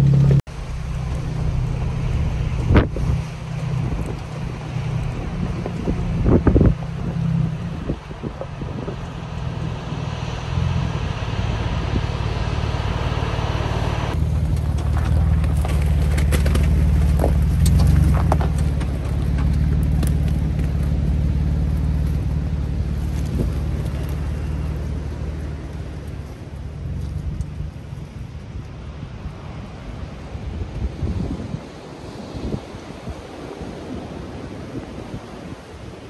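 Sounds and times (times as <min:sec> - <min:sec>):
surf hissing: 0:00.0 - 0:14.2
engine running low: 0:00.0 - 0:36.0
wind: 0:00.0 - 0:36.0
tyres crunching stones: 0:14.1 - 0:27.7.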